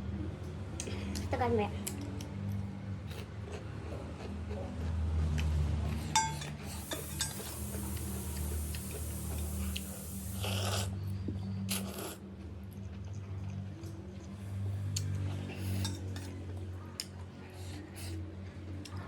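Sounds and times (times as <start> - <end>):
slurping and eating: 3.1 - 13.5
spoon clinking on bowl: 6.2 - 7.5.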